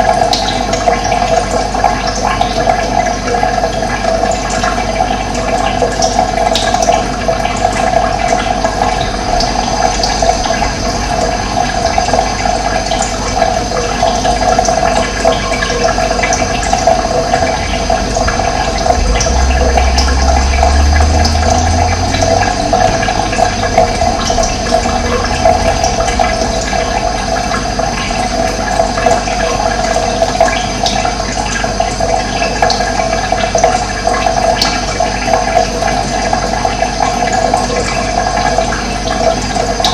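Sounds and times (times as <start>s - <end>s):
running water: 0.0s - 39.9s
low rumble: 8.3s - 14.0s, 15.9s - 30.3s.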